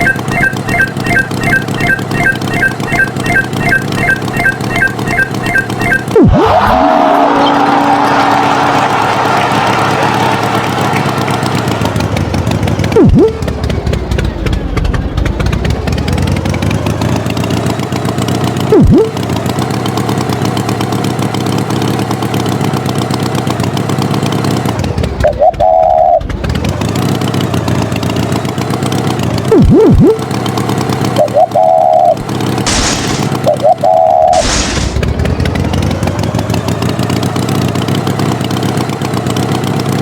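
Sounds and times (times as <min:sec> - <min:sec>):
short beeps: 0:00.0 - 0:06.9, 0:29.5 - 0:30.2
swooping pitch slides: 0:00.0 - 0:08.2
cartoon tractor engine: 0:00.0 - 0:40.0.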